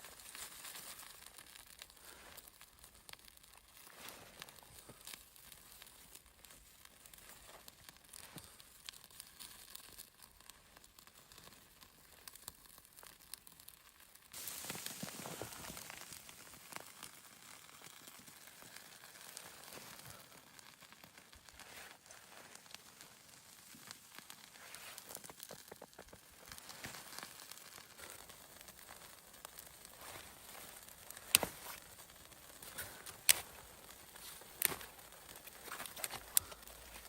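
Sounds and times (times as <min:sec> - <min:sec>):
faint crackling and rustling: 0:00.0 - 0:37.0
steady hiss: 0:14.3 - 0:17.6.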